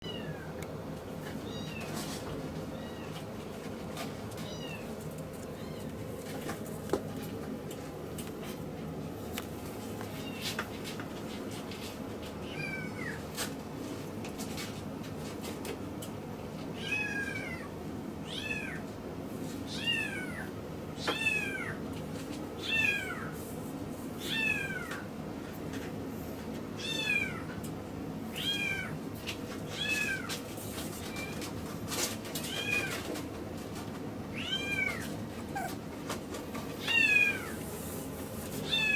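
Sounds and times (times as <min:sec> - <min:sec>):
low background hum: 0:00.0 - 0:38.9
puppy whining: 0:34.6 - 0:37.7.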